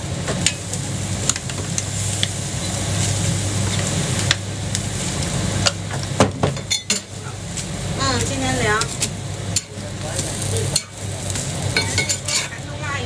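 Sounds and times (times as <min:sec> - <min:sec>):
pancake sizzling on griddle: 0:00.0 - 0:13.0
steady low hum: 0:00.0 - 0:13.0.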